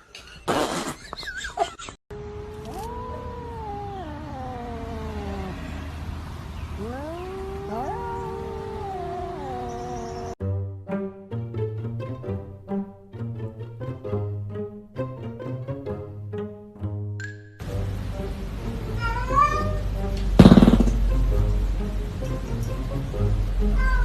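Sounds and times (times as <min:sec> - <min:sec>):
cat yowling: 0:02.2 - 0:10.4, 0:23.8 - 0:24.0.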